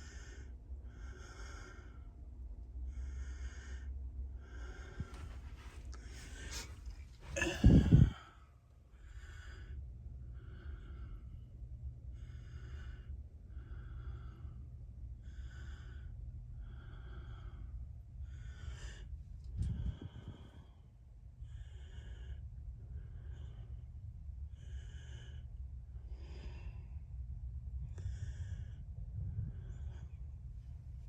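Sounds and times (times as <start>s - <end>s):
rhythmic breathing: 4.4s - 8.3s
low hum: 4.4s - 20.8s, 21.4s - 31.0s.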